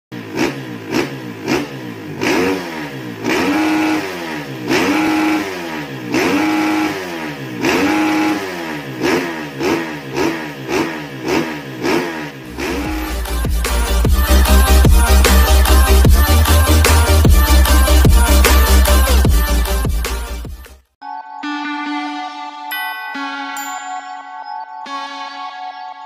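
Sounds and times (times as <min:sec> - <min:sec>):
dirt bike engine revving: 0:00.2 - 0:20.5.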